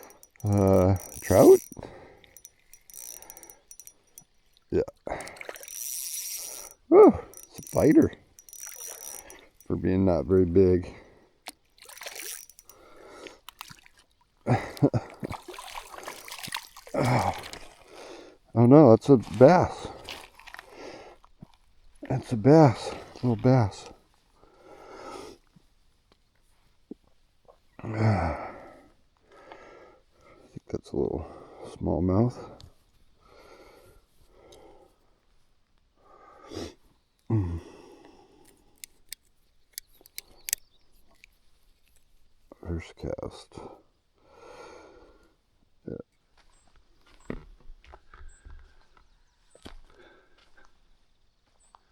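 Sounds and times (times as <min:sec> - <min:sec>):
sharp irregular clicks: 0:00.0 - 0:04.4, 0:05.3 - 0:09.7, 0:11.8 - 0:12.8
water splashing: 0:00.0 - 0:09.7, 0:11.8 - 0:12.9, 0:13.5 - 0:18.1
fishing gear clicks and knocks: 0:00.0 - 0:10.8, 0:11.4 - 0:18.0, 0:38.4 - 0:42.3.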